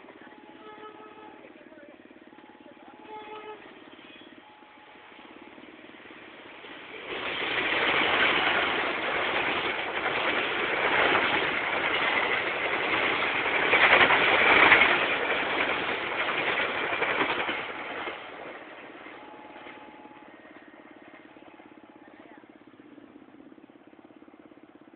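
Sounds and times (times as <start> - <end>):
passenger train passing: 0.0 - 24.9.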